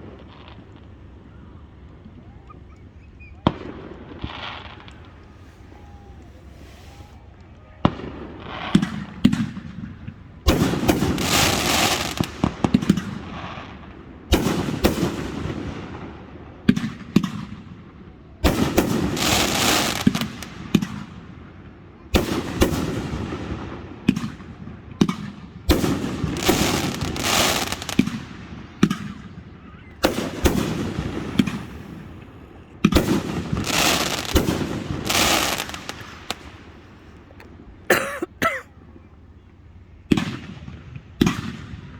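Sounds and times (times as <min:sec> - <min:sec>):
fireworks bangs: 0:02.8 - 0:17.8, 0:18.4 - 0:21.5, 0:22.1 - 0:37.9, 0:40.1 - 0:41.9
firework crackling: 0:02.9 - 0:17.6, 0:18.4 - 0:37.8.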